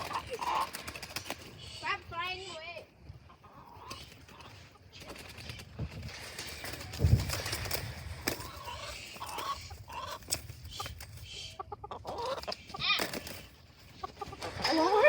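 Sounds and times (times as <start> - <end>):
chickens flapping and rustling: 0.0 - 15.0
chicken clucks: 3.1 - 5.2, 8.3 - 13.0, 13.7 - 15.0.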